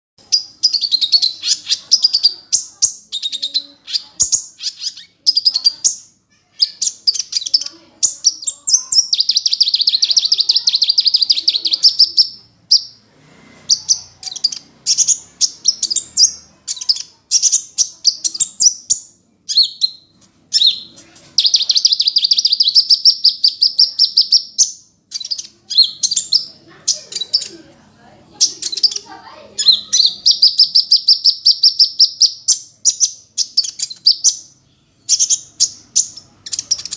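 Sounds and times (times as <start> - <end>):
bird trills: 0.2 - 27.6, 28.3 - 36.9
songbird chirping song: 0.2 - 36.9.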